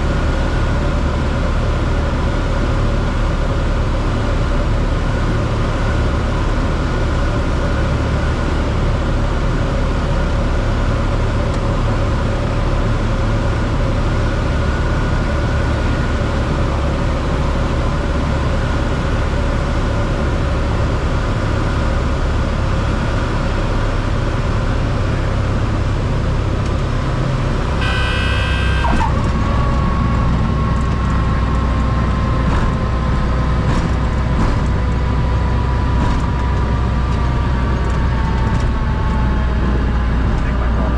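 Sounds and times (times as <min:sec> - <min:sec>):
aircraft engine idling: 0:00.0 - 0:40.9
brief high tone: 0:27.8 - 0:29.2.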